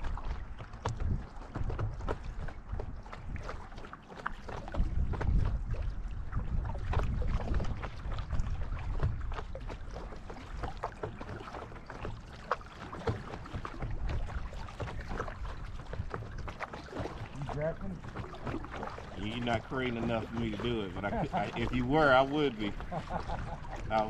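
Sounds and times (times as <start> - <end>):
wind on microphone: 0.0 - 3.7, 4.4 - 10.9
paddle splashing in water: 0.0 - 24.0.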